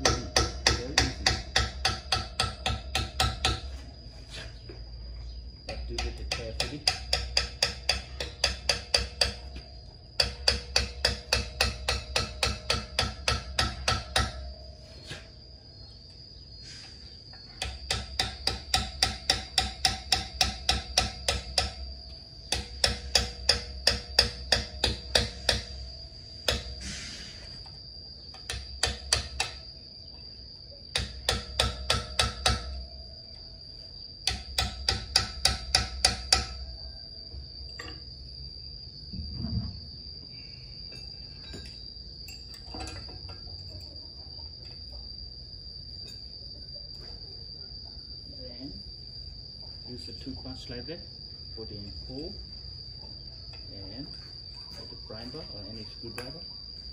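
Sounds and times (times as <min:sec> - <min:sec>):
hammer tapping steel punch: 0:00.0 - 0:03.7, 0:05.7 - 0:09.6, 0:10.2 - 0:14.5, 0:17.6 - 0:21.8, 0:22.5 - 0:25.8, 0:26.4 - 0:26.8, 0:28.3 - 0:29.6, 0:30.9 - 0:32.8, 0:34.2 - 0:36.6.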